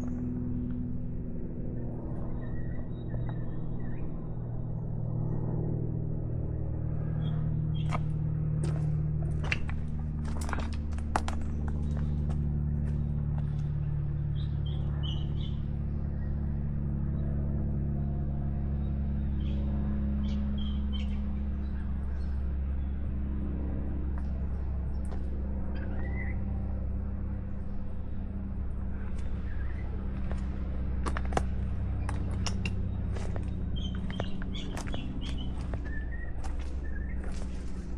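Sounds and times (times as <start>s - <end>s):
low mechanical hum: 0.0s - 37.9s
bird chirps: 33.2s - 37.6s.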